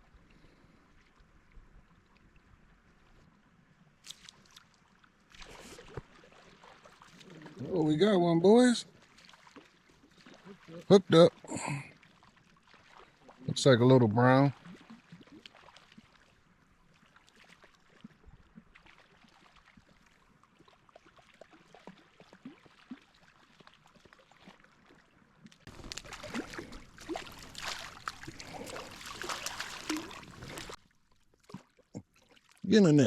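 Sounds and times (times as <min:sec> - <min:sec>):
river water crackling: 0:00.0 - 0:33.0
fish splashing in water: 0:14.6 - 0:16.4, 0:17.0 - 0:25.0, 0:25.6 - 0:32.6.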